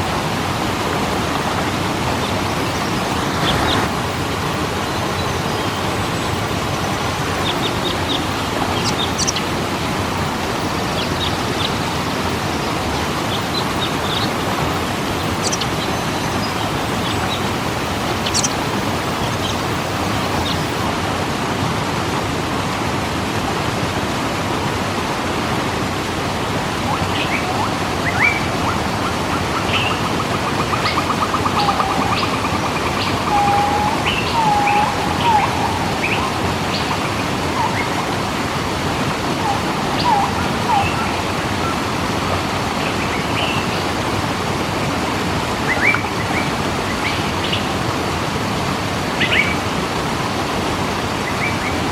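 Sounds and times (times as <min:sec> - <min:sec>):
waterfall rushing: 0:00.0 - 0:51.9
small birds chirping: 0:01.3 - 0:20.8, 0:26.9 - 0:41.8
bird trilling and warbling: 0:07.4 - 0:09.5, 0:15.2 - 0:20.8, 0:26.9 - 0:38.7.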